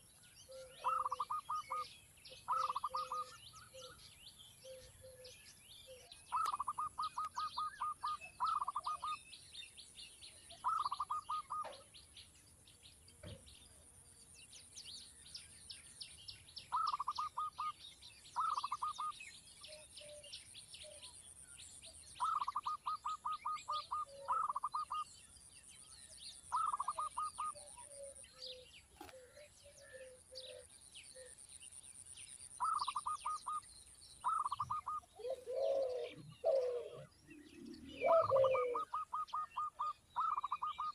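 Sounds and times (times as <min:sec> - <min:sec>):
faint high chirping: 0:00.0 - 0:09.2
small bird chirping: 0:00.0 - 0:40.9.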